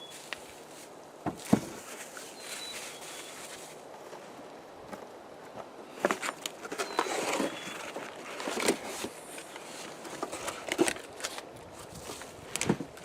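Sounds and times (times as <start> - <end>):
cardboard rustling and tearing: 6.0 - 13.0.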